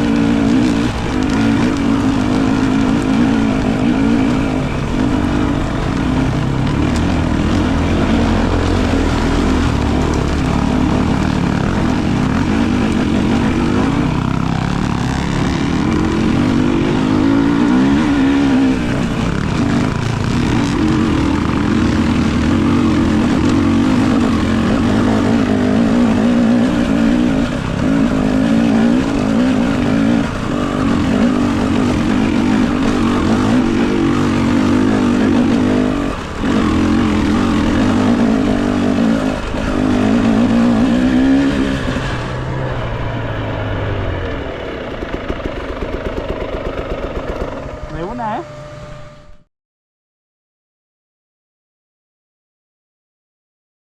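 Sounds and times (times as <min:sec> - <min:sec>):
dirt bike engine revving: 0:00.0 - 0:49.2.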